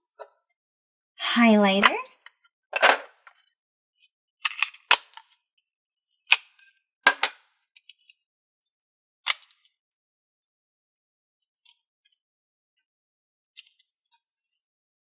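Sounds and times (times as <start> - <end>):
sharp putty pops and snaps: 4.9 - 5.2, 6.3 - 6.5, 9.3 - 9.5.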